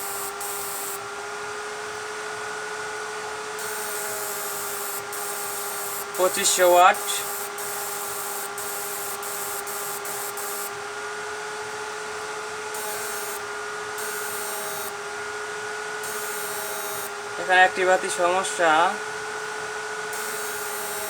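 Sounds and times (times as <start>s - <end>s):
electrical whine: 0.0s - 1.2s, 3.6s - 10.9s, 12.7s - 15.3s, 15.9s - 21.0s
cooling fans hissing: 0.0s - 21.0s.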